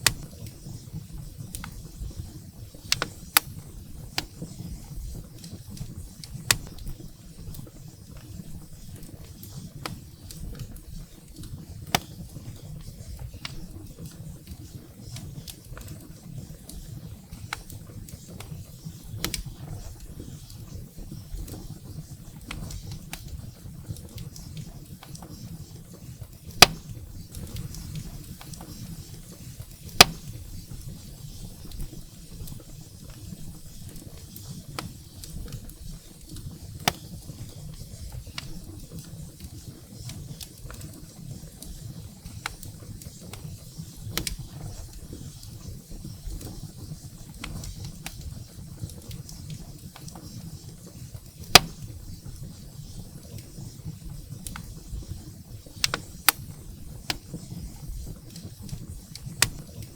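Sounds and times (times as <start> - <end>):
loud sharp fire pops: 0.0 - 4.5, 26.5 - 29.2, 29.9 - 30.8, 51.4 - 52.4
firewood crackling: 0.0 - 59.9.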